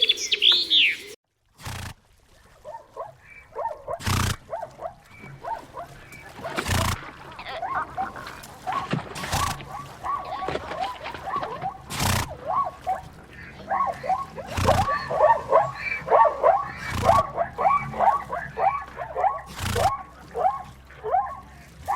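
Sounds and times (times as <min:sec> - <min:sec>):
animal yelping cries: 0:05.4 - 0:21.4.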